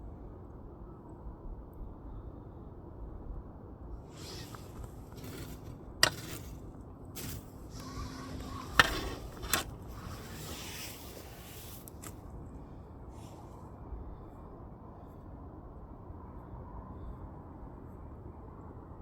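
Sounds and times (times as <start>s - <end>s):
firewood crackling: 4.0s - 12.2s.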